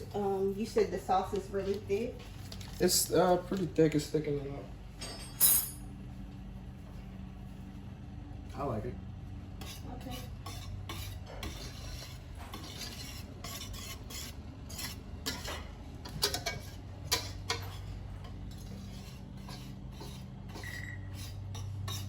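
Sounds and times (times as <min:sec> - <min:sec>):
steady low hum: 0:00.0 - 0:22.0
utensil scraping a pan: 0:09.6 - 0:22.0.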